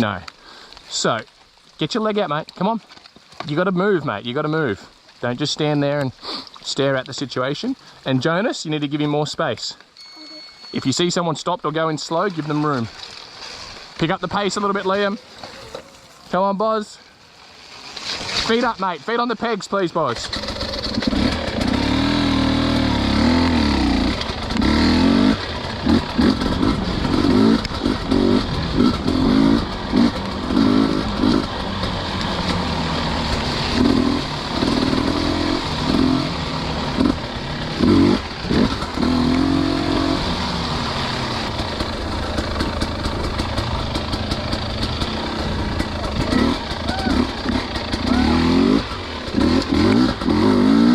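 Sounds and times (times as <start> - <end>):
dirt bike engines revving: 18.5 - 50.9.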